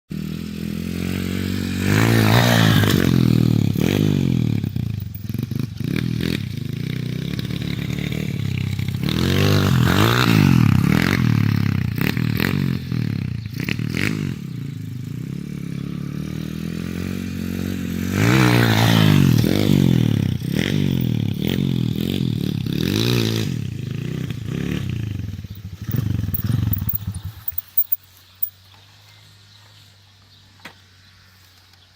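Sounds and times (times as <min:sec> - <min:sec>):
pit bike engine revving: 0:00.1 - 0:28.5
knocks and clatter from bike: 0:04.7 - 0:08.8, 0:25.5 - 0:28.9.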